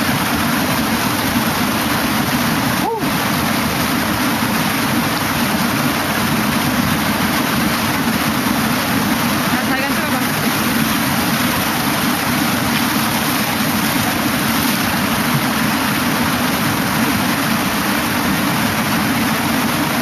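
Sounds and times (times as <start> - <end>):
mountain stream rushing: 0.0 - 20.0.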